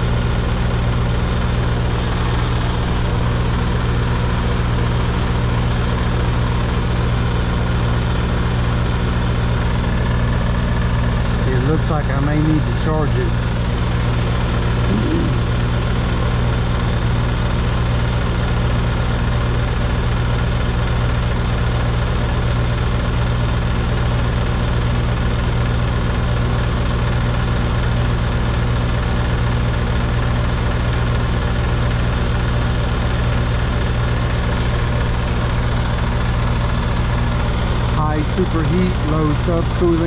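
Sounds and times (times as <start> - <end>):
compressor hum: 0.0 - 16.0, 32.9 - 40.0
condenser fan rushing: 0.0 - 16.2, 31.3 - 40.0.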